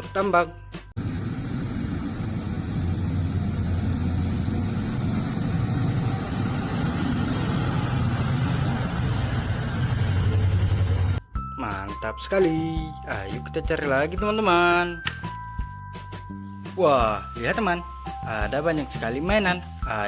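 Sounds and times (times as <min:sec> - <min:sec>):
diesel engine rumble: 0:01.0 - 0:11.2.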